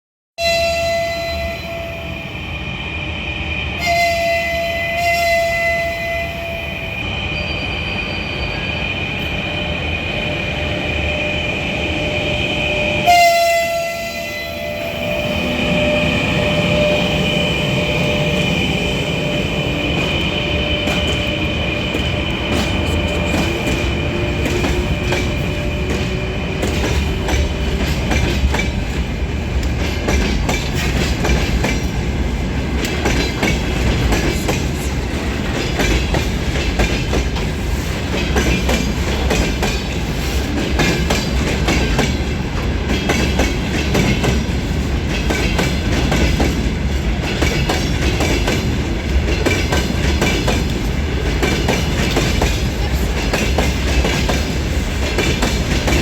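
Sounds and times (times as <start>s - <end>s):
freight train wagons rumbling: 14.6s - 56.0s
wheels clacking over rail joints: 47.2s - 56.0s.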